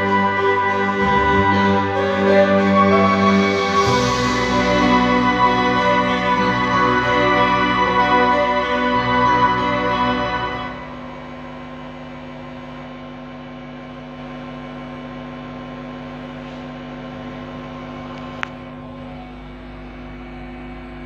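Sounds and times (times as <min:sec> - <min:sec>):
backing music: 0:00.0 - 0:11.2
electrical hum: 0:00.0 - 0:21.0.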